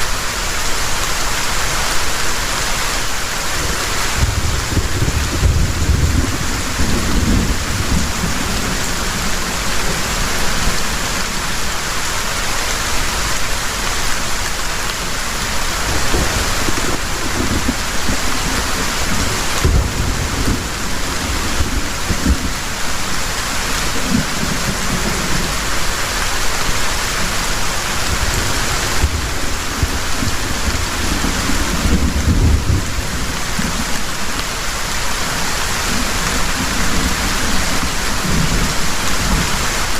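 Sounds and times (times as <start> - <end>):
heavy rain: 0.0 - 39.9
thunder rumbling: 3.5 - 11.7, 15.6 - 26.0, 27.2 - 34.2.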